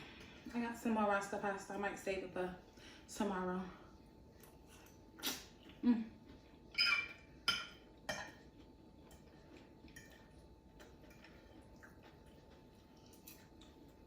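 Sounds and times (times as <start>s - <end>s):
utensils clinking against dish: 6.7s - 8.5s.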